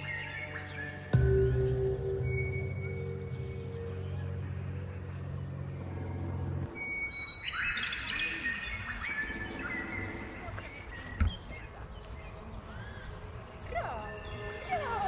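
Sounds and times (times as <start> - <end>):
low steady drone: 0.0 - 6.8
birds chirping: 0.0 - 15.0.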